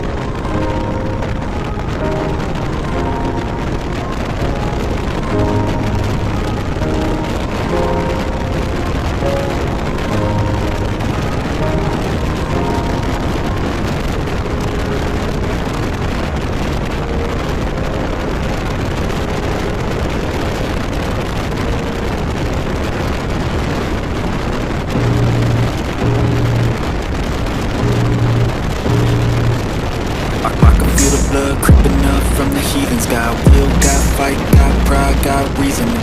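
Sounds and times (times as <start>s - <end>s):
faint background music: 0.0s - 36.0s
wind and road noise: 0.0s - 36.0s
deep bass notes: 24.9s - 26.9s, 27.7s - 29.8s, 30.5s - 32.7s, 33.4s - 35.6s.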